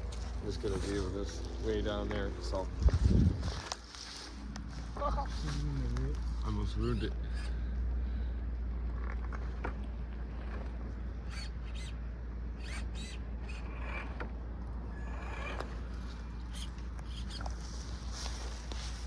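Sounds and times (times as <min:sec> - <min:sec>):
wind on microphone: 0:02.6 - 0:03.7
clicks and crunches on dirt: 0:02.7 - 0:06.4.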